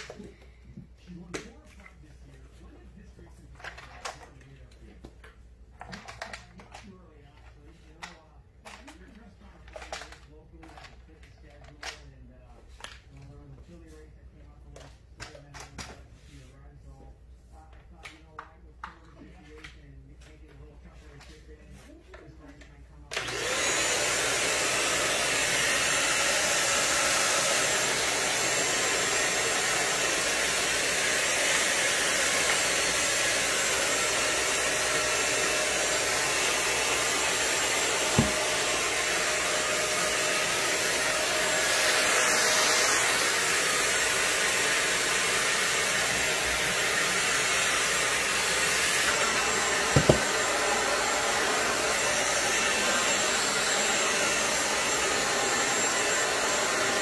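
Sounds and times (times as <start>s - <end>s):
stick vacuum cleaner running: 23.0s - 57.0s
knock: 50.0s - 50.2s.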